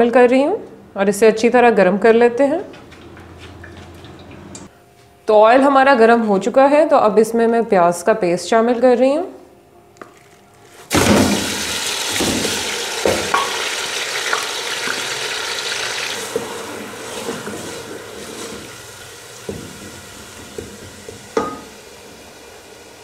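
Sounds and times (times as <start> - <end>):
paste sizzling in hot oil: 11.0 - 23.0.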